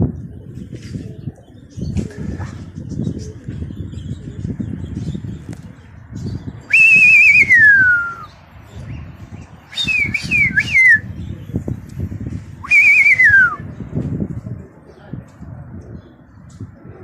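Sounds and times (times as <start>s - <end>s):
loud warbling whistling: 6.7s - 8.3s, 9.7s - 11.0s, 12.7s - 13.6s.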